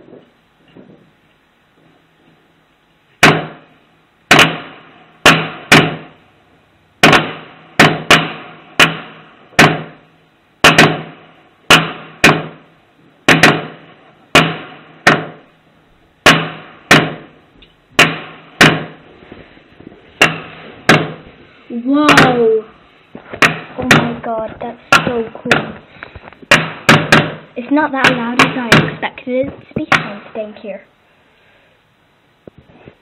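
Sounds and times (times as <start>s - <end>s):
fireworks banging: 16.2s - 30.5s.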